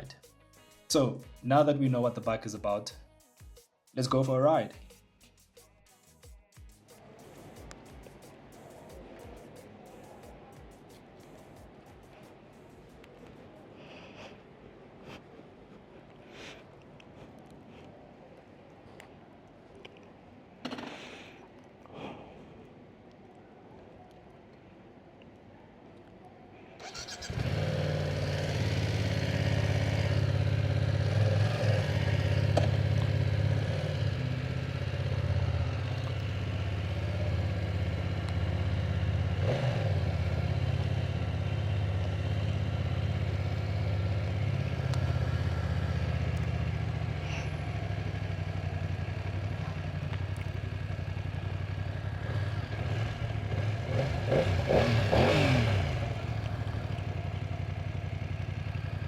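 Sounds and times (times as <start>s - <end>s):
motorcycle engine running: 26.8s - 59.0s.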